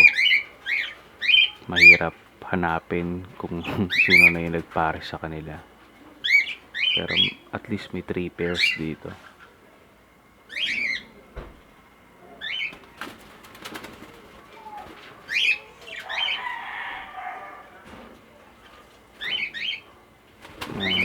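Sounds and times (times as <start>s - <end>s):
wings fluttering: 12.4s - 16.8s, 17.8s - 21.0s
parrots giving sharp calls: 19.2s - 21.0s.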